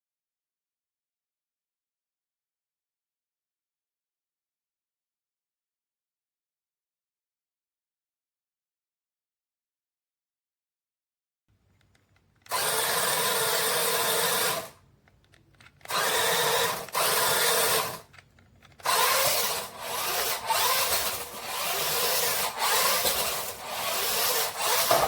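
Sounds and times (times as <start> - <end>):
toy car electric motor whirring: 12.4 - 14.8, 15.5 - 25.0.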